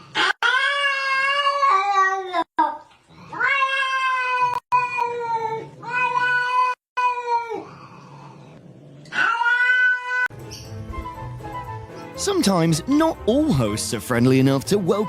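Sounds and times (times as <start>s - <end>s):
cat yowling: 0.2s - 2.4s, 3.3s - 7.8s, 9.1s - 10.3s.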